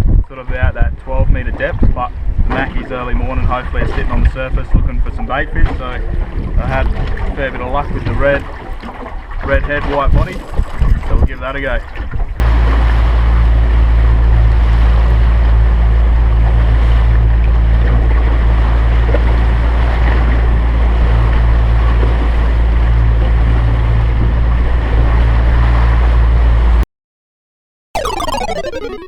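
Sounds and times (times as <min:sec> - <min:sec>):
wind buffeting microphone: 0:00.0 - 0:12.4
water rushing past hull: 0:02.2 - 0:26.6
outboard motor running: 0:12.4 - 0:26.8.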